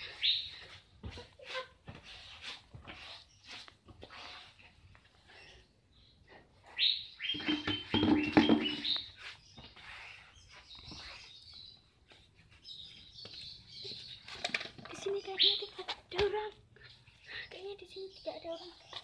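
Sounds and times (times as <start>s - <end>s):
bird chirping: 5.3s - 19.0s.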